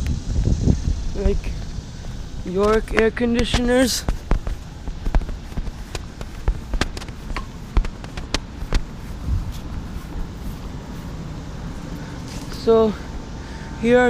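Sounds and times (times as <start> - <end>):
air conditioning hum: 0.0 - 14.0
sharp clicks and taps: 2.6 - 8.9.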